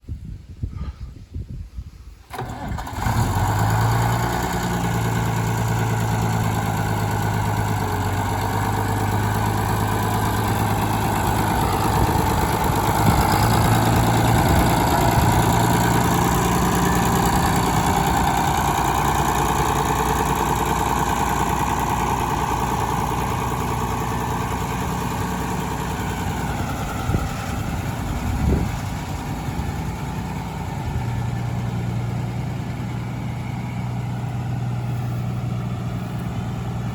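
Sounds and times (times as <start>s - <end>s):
diesel tractor engine idling: 2.3s - 36.9s.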